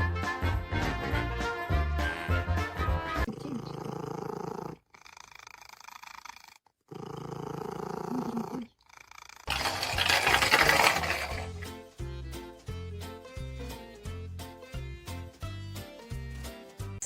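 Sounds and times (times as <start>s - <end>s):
pet growling: 3.2s - 11.5s.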